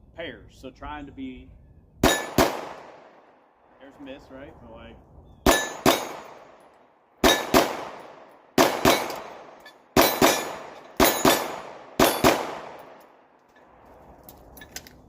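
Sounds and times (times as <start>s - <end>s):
handgun shots: 2.0s - 3.0s, 5.5s - 6.6s, 7.2s - 13.1s
steel target clanging: 5.5s - 6.4s, 7.2s - 7.6s, 8.8s - 12.4s.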